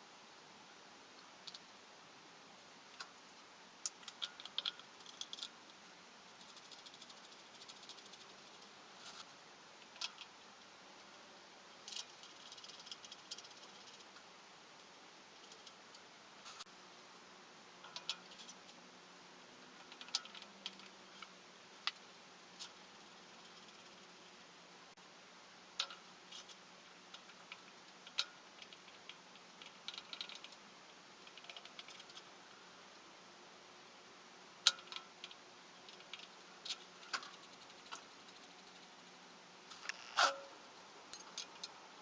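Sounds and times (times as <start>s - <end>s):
faint steady hiss: 0.0s - 42.0s
light clicks and rattles: 19.8s - 24.1s, 25.8s - 30.6s, 31.2s - 32.6s
tools clicking and tapping: 41.2s - 41.8s.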